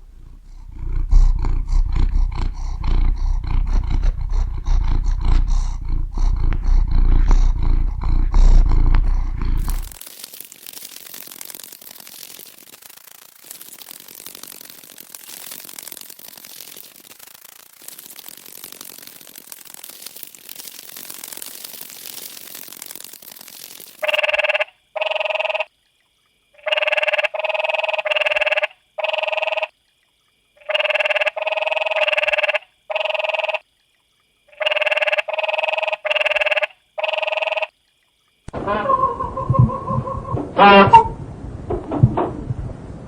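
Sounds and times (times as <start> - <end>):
faint hiss: 0.0 - 24.2
animal short calls: 38.6 - 41.1.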